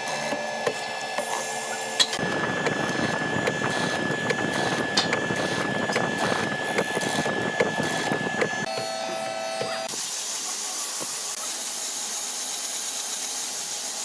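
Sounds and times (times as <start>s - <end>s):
power tool whining: 0.0s - 10.1s.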